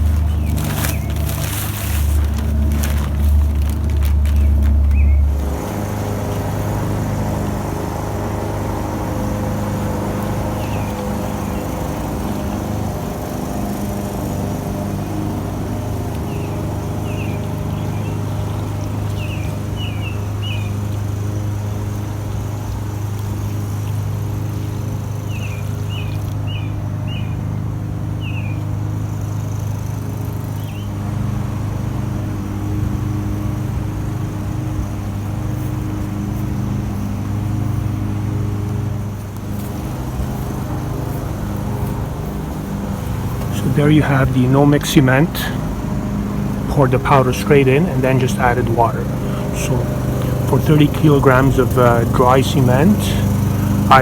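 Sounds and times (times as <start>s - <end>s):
bird chirping: 0.0s - 5.3s, 10.5s - 12.6s, 16.3s - 20.8s, 28.2s - 28.6s
low motor hum: 0.0s - 54.0s.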